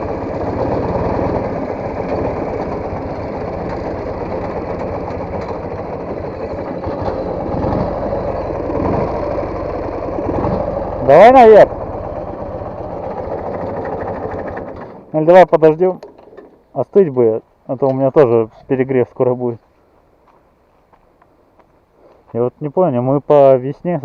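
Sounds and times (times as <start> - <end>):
motorcycle engine running: 0.0 - 15.1.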